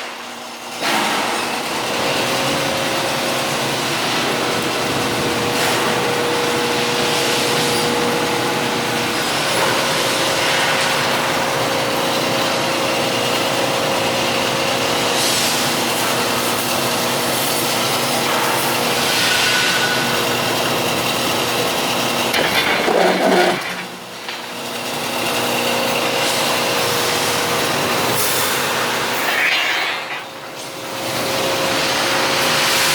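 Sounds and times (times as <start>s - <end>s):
steady machine hum: 20.1s - 32.4s
machine grinding: 21.5s - 26.0s, 28.8s - 31.2s.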